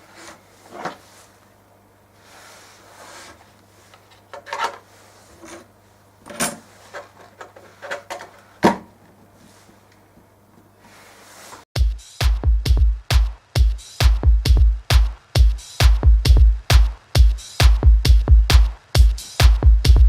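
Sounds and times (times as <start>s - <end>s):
rubbing or sliding: 0.0s - 1.4s, 2.2s - 5.8s, 10.8s - 11.7s
faint steady hum: 0.0s - 11.4s.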